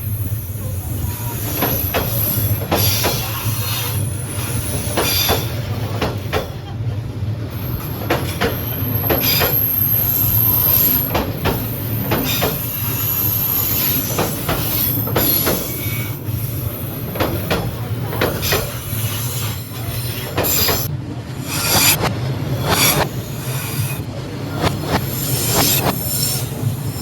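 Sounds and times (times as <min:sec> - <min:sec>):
train rumbling: 0:00.0 - 0:27.0
wheels clacking over rail joints: 0:01.4 - 0:27.0
high wheel squeal: 0:07.6 - 0:17.1, 0:18.3 - 0:24.1.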